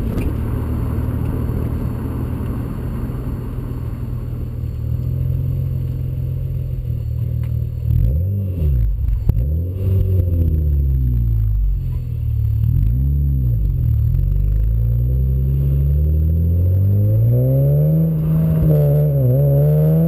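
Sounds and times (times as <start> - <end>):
car engine idling: 0.0 - 8.0, 8.8 - 16.4
car engine revving: 0.0 - 20.0.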